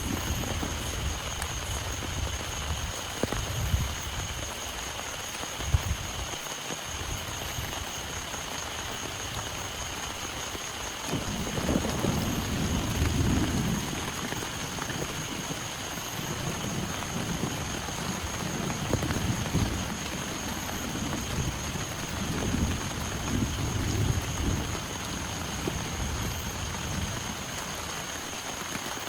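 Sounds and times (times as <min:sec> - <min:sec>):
thunder rumbling: 0:00.0 - 0:04.0, 0:11.0 - 0:28.0
heavy rain falling: 0:00.0 - 0:29.0.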